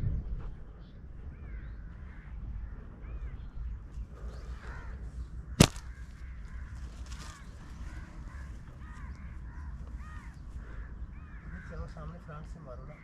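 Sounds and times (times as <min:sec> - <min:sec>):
birds calling: 0:00.5 - 0:13.0
sharp snap: 0:05.6 - 0:06.0.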